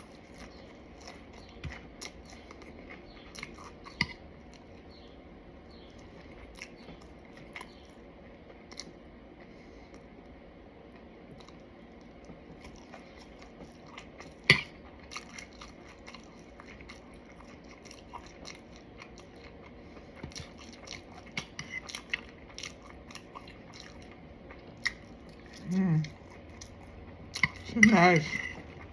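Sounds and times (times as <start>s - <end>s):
crunching fried food: 11.4s - 28.9s.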